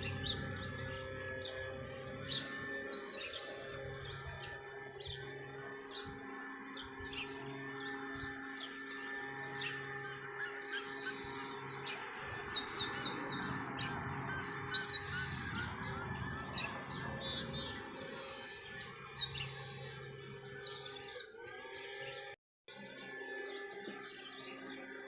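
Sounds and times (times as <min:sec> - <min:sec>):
descending whistled notes: 0:00.0 - 0:22.4
small birds chirping: 0:00.0 - 0:25.0
steady background tones: 0:00.0 - 0:25.0.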